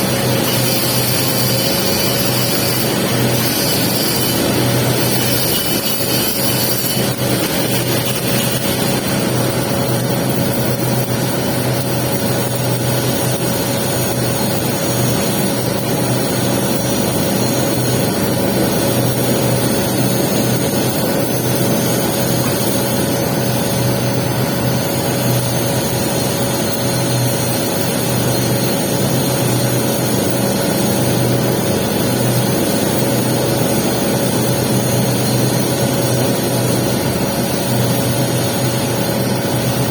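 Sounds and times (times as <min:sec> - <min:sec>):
welding arc hissing and crackling: 0:00.0 - 0:16.0
machine hum: 0:00.0 - 0:27.4.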